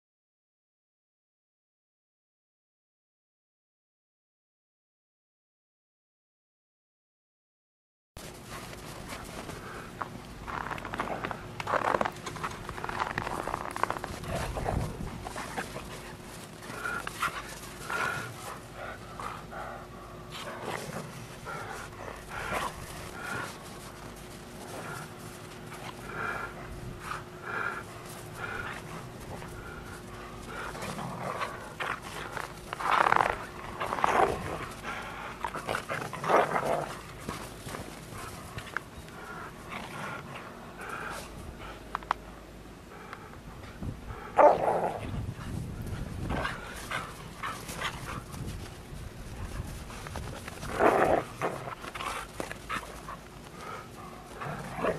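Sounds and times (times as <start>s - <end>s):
dogs scuffling in snow: 8.2s - 41.4s, 44.4s - 54.9s
dogs panting: 8.2s - 54.9s.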